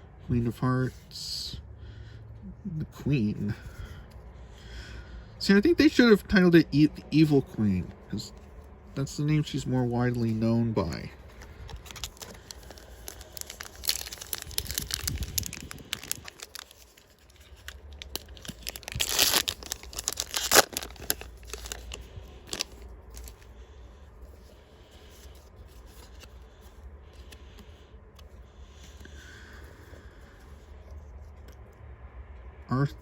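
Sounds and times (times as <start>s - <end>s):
wrapper and cards rustling: 8.3s - 23.6s
wrapper crinkling and tearing: 11.3s - 23.5s.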